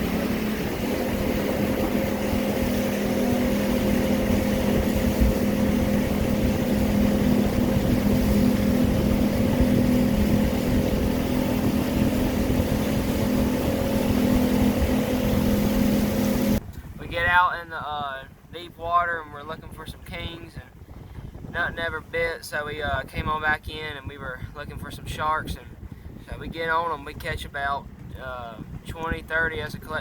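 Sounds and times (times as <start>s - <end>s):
motorboat engine drone: 0.0s - 17.0s
rushing wind and water: 0.0s - 30.0s.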